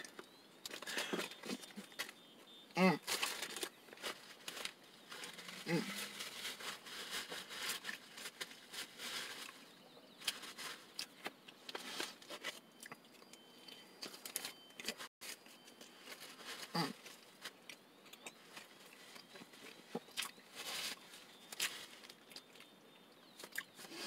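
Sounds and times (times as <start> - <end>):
person humming: 2.8 - 3.0, 5.5 - 6.2, 16.7 - 17.0
paper wrapper rustling: 3.0 - 12.6
person chewing a sandwich: 16.6 - 20.4, 23.4 - 24.0.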